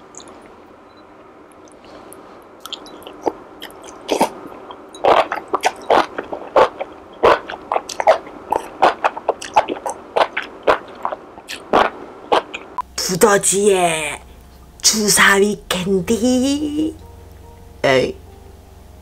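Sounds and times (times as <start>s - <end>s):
wet mouth smacks and chewing: 2.6s - 12.8s.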